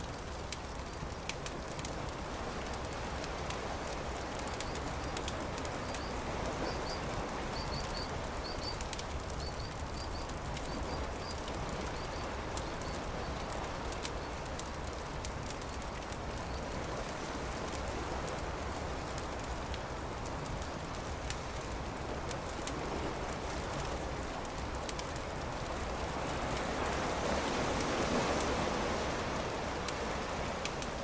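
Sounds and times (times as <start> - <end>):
campfire crackling and popping: 0.0 - 31.0
small bird chirping: 5.8 - 13.3.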